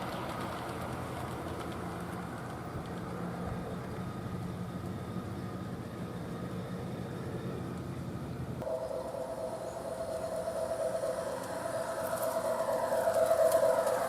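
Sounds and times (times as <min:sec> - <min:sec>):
model locomotive low hum: 0:00.0 - 0:14.0
faint higher whine: 0:02.8 - 0:14.0
higher steady tone: 0:08.6 - 0:14.0.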